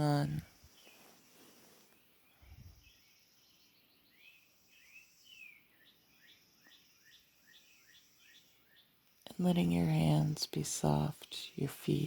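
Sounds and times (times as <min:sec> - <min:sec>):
birds chirping: 0:00.0 - 0:10.3.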